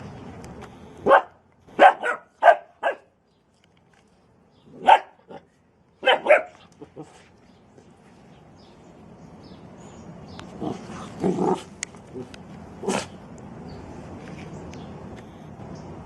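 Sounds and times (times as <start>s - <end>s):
dog barking: 1.0s - 3.1s, 4.8s - 5.4s, 6.0s - 7.1s.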